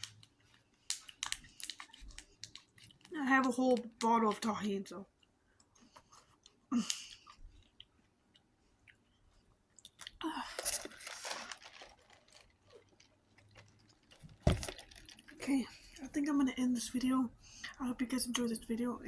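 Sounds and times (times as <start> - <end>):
wet chewing clicks: 0.0 - 4.5
crunching raw vegetables: 9.8 - 16.0.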